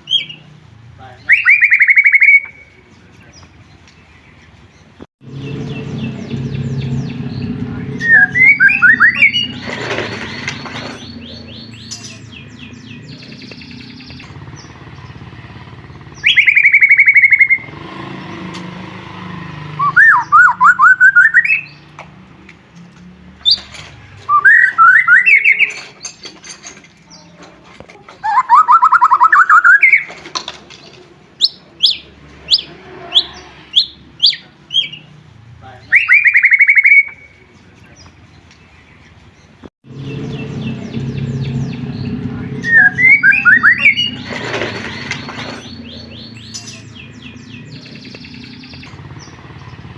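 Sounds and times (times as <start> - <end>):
bird singing whistled phrases: 1.2 - 2.8, 7.9 - 9.8, 16.2 - 17.7, 19.8 - 21.8, 24.3 - 25.8, 28.2 - 30.1, 35.8 - 37.4, 42.6 - 44.3.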